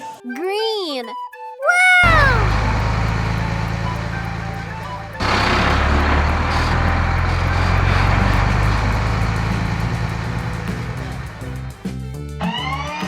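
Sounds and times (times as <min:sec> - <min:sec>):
cartoon engine rumble: 0:01.7 - 0:11.6.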